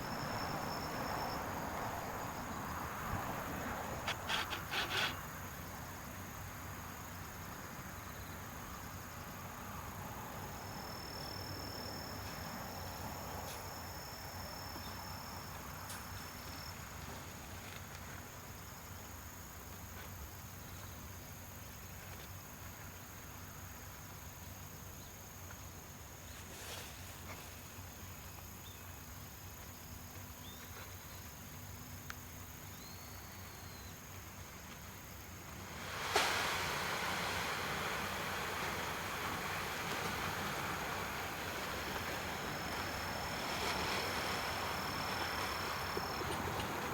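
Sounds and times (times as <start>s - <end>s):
thin high whistle: 0.0s - 2.2s
even background hiss: 0.0s - 46.9s.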